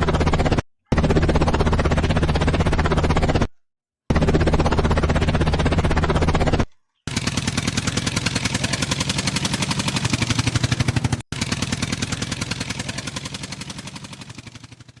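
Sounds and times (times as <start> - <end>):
helicopter rotor chopping: 0.0 - 15.0
low hum: 4.1 - 14.4.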